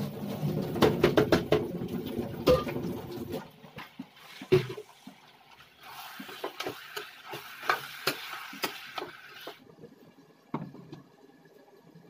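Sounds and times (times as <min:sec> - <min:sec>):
pieces knocking on pan: 0:00.8 - 0:01.7
chicken sizzling in hot pan: 0:05.8 - 0:09.6.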